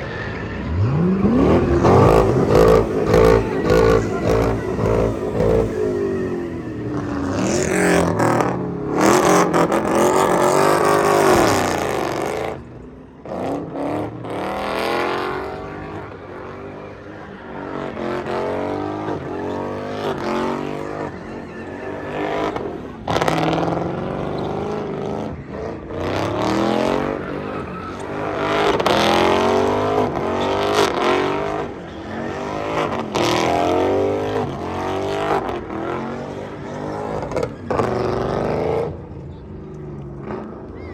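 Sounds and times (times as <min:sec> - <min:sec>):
car engines revving: 0:00.0 - 0:40.9.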